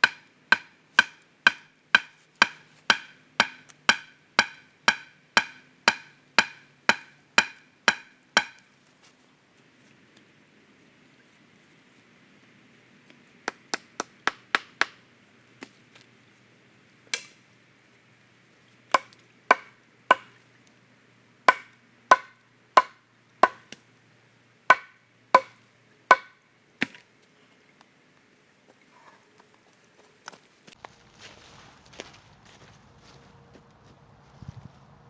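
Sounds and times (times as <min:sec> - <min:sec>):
hand tool striking wood: 0:00.0 - 0:08.6, 0:13.5 - 0:15.0, 0:19.0 - 0:20.3, 0:21.5 - 0:23.8, 0:24.7 - 0:27.0.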